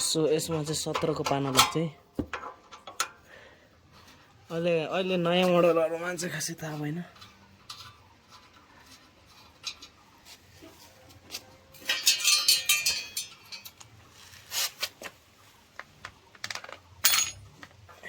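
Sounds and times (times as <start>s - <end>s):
metal hand tools clinking: 11.8s - 13.8s, 17.0s - 17.6s.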